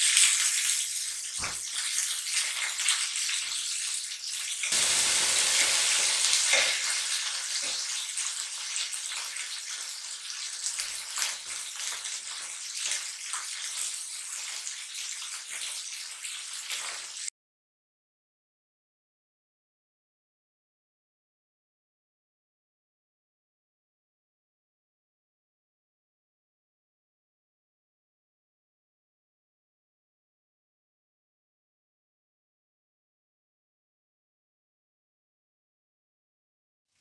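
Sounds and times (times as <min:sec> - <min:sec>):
chicken sizzling in hot oil: 0:00.0 - 0:17.3.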